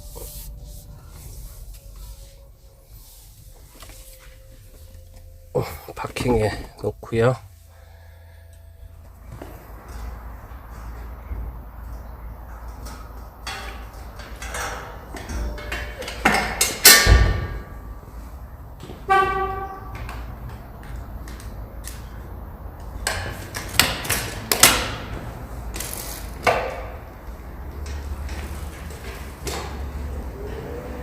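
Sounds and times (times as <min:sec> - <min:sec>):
low steady hum: 0:00.0 - 0:18.8.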